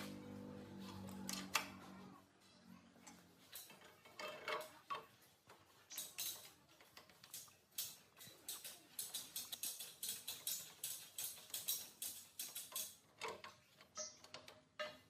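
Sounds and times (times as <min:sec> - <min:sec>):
metal parts clicking: 0:03.1 - 0:05.2, 0:05.9 - 0:15.0.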